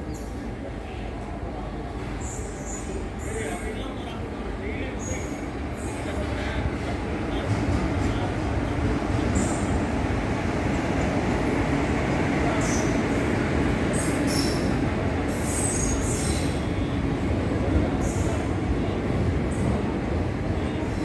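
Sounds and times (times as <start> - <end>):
train coaches rumbling: 0.0 - 21.0
high-pitched wheel squeals: 13.9 - 14.7.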